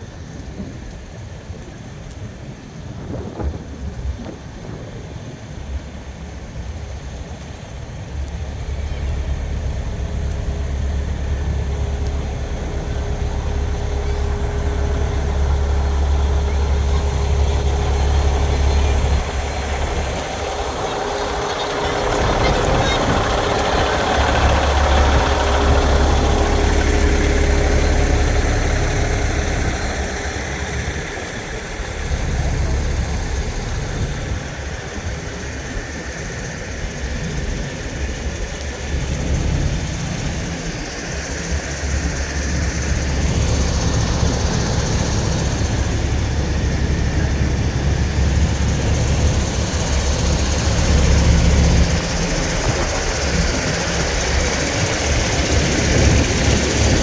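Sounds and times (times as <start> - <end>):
diesel truck engines rumbling: 0.0 - 57.0.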